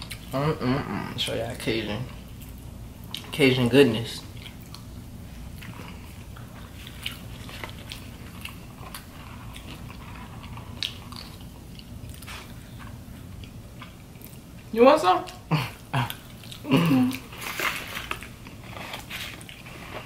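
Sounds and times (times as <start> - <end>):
chewing and biting: 4.3 - 14.7.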